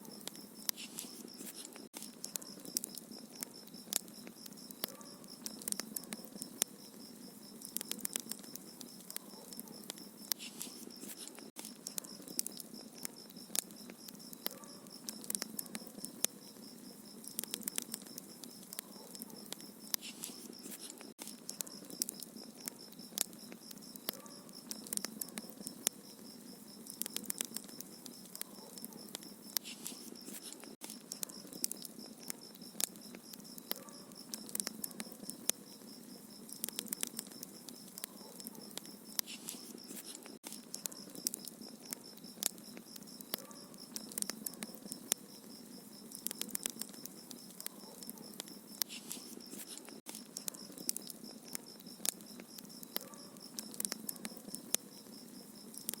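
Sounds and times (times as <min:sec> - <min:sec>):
soft fire hiss: 0:00.0 - 0:56.0
wood fire crackling: 0:00.0 - 0:56.0
fire snaps and pops: 0:00.1 - 0:56.0.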